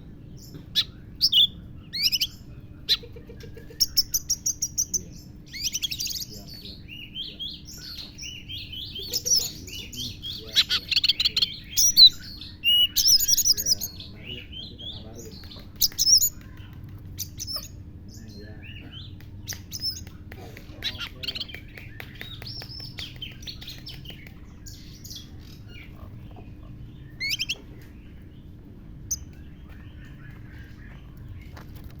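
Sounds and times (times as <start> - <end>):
bird singing chirps and whistles: 27.1 - 27.7.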